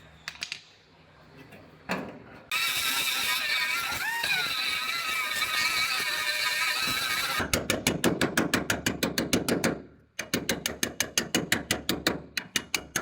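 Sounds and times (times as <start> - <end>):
power grinder whining: 2.5 - 7.4.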